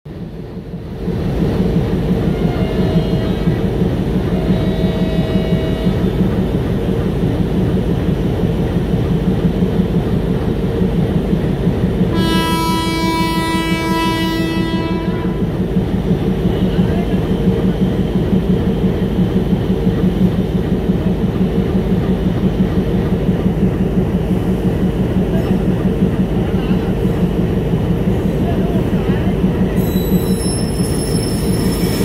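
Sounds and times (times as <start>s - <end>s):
train low rumble: 0.1s - 32.0s
loud locomotive horn blast: 2.2s - 6.1s, 12.1s - 15.7s.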